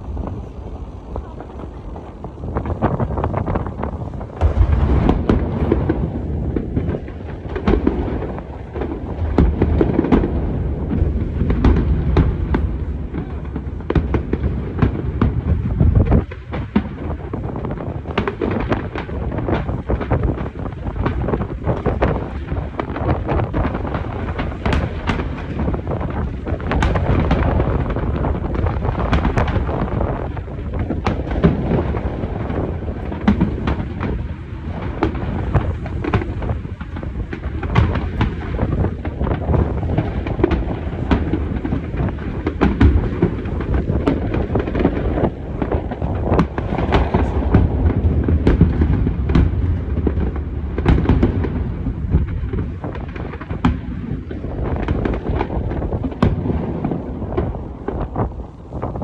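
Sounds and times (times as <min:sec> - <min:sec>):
low rumble: 0:00.0 - 0:07.4
fireworks bursting: 0:00.0 - 0:59.0.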